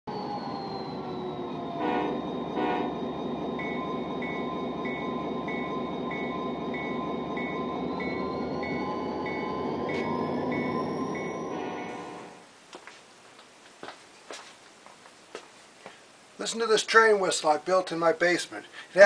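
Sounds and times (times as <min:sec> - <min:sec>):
train rumbling: 0:00.1 - 0:12.5
train horn toots: 0:01.8 - 0:03.1, 0:11.5 - 0:12.4.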